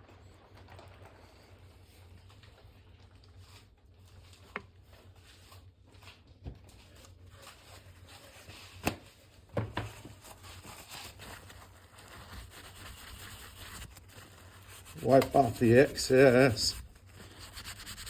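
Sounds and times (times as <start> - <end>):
faint rubbing of wax on wood: 9.8 - 18.0.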